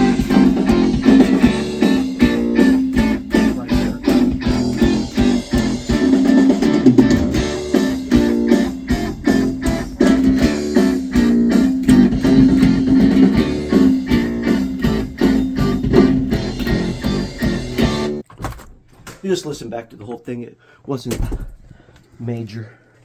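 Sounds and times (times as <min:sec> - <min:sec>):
electric bass line: 0:00.0 - 0:18.2
heavy rock music: 0:00.0 - 0:18.2.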